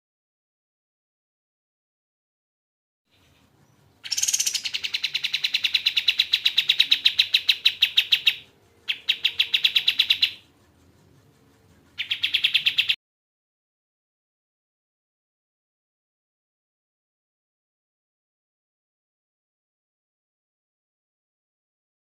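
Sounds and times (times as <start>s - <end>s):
songbird singing rapid trills: 3.1s - 10.5s, 12.0s - 13.0s.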